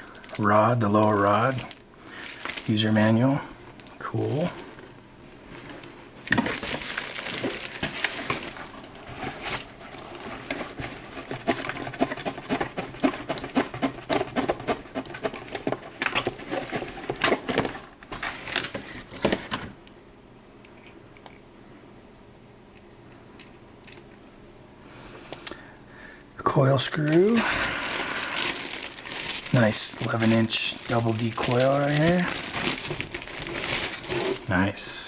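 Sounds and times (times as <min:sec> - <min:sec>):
packaging rustling and crinkling: 0:00.0 - 0:19.8, 0:26.8 - 0:34.9.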